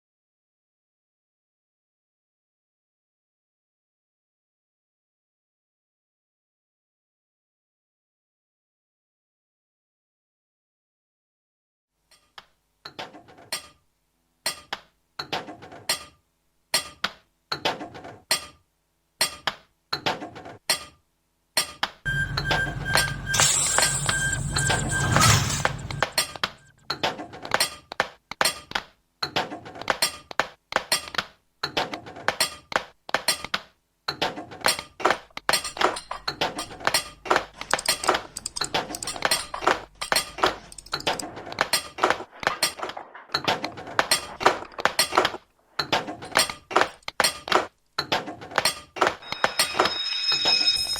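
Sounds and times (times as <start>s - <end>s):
clicking and clinking music hits: 22.1s - 26.8s, 49.2s - 50.9s.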